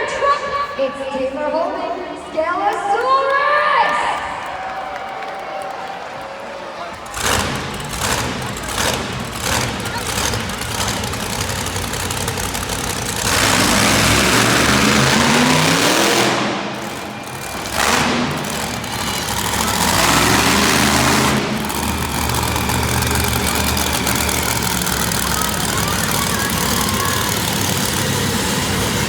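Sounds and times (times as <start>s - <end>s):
monster truck engine revving: 6.6s - 29.0s.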